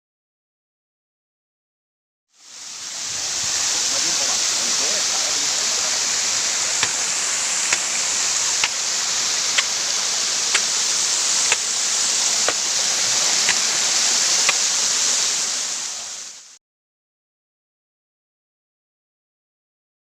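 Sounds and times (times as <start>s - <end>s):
rushing water: 2.4s - 16.6s.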